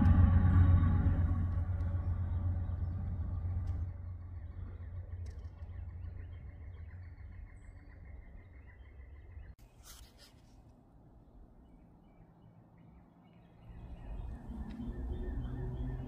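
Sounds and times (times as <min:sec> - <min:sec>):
freight train rumbling past: 0:00.0 - 0:05.0.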